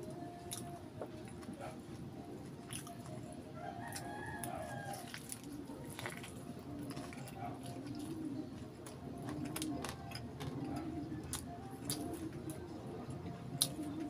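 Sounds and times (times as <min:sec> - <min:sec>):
chewing and lip-smacking: 0:00.1 - 0:14.0
rooster crowing: 0:03.6 - 0:05.2.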